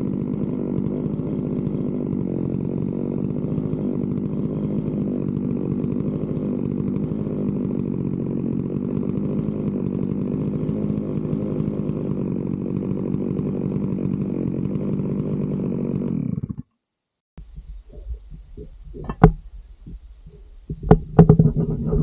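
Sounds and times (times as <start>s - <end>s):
chainsaw cutting log: 0.0s - 16.8s, 17.4s - 20.0s, 20.7s - 22.0s.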